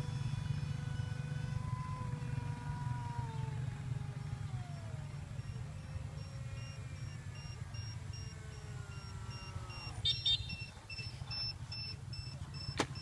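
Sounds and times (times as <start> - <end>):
low motor rumble: 0.0 - 13.0
short high beeps: 9.0 - 13.0.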